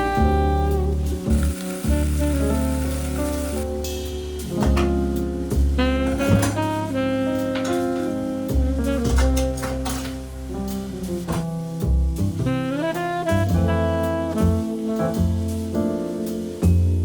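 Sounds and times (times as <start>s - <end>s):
soft sizzling hiss: 0.0s - 4.6s
instrumental jazz music: 0.0s - 17.0s.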